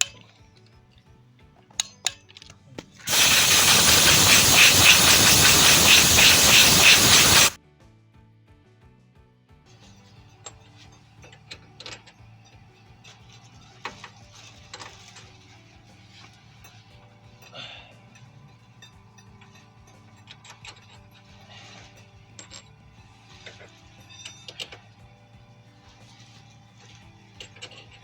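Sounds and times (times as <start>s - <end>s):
metal hand tools clinking and scraping: 3.1s - 7.6s, 10.4s - 25.1s, 25.8s - 28.0s
soft background music: 8.4s - 28.0s.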